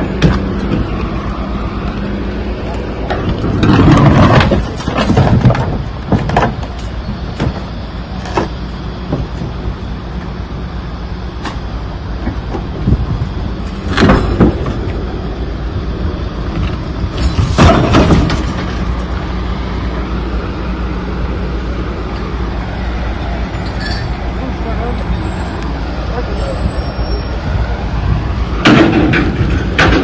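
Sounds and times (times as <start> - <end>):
vehicle engine running: 0.0 - 30.0
loud sudden knocks: 17.2 - 18.8.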